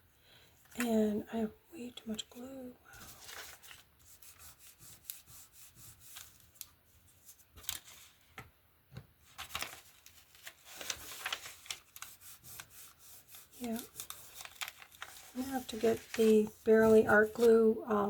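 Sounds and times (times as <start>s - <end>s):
paper rustling and scraping: 2.9s - 8.3s, 9.2s - 18.0s.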